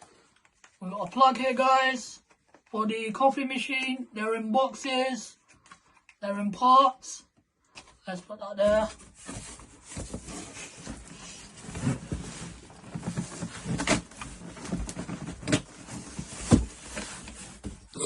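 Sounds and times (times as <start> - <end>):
cardboard packaging rustling: 8.8 - 17.9.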